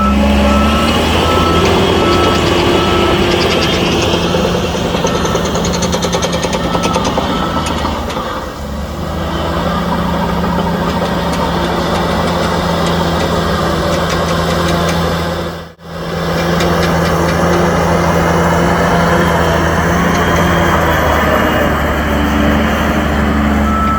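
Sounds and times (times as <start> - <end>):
heavy diesel engine droning: 0.0 - 23.9.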